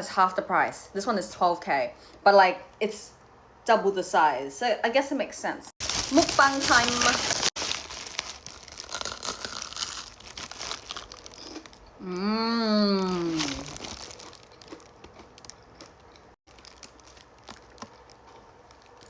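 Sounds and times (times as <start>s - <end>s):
crunchy food chewing: 6.8s - 11.9s, 13.0s - 19.0s
person humming mmm: 12.0s - 13.8s.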